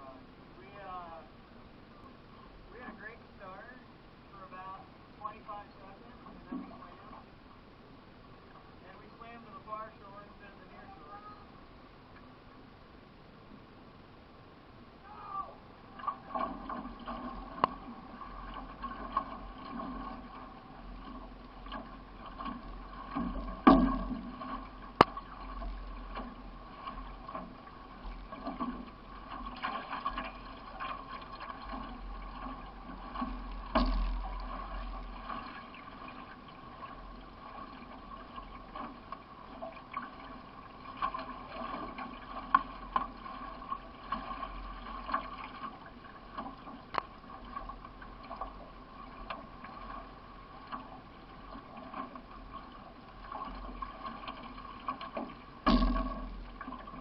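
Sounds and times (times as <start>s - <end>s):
water sloshing around canoe: 5.2s - 7.6s, 15.6s - 57.0s
small knocks on canoe: 21.7s - 27.6s, 31.5s - 35.4s, 54.8s - 57.0s.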